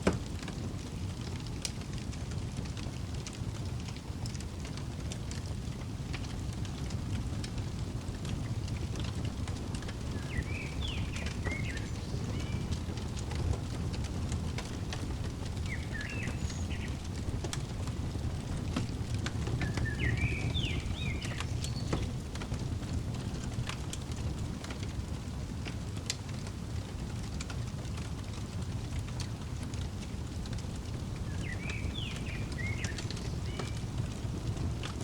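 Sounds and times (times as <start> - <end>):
fire crackling: 0.0 - 35.0
bird chirping: 9.8 - 22.2, 31.2 - 34.1.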